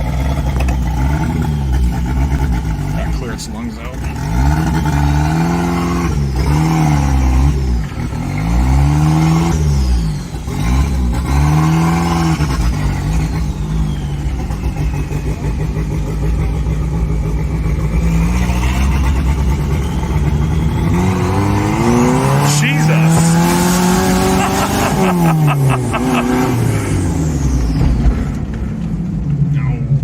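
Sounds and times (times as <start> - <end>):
car engine revving: 0.0 - 30.0
turbo whine: 12.0 - 28.6.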